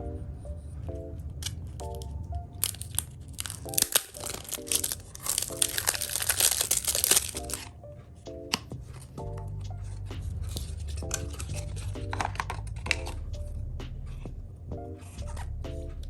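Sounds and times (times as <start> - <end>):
light melodic background music: 0.0 - 16.0
packaging crinkling and tearing: 1.4 - 7.7.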